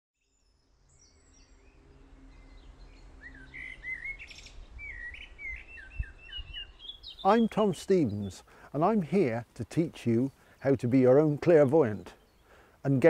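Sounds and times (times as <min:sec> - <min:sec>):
small birds chirping and warbling: 0:00.2 - 0:13.0.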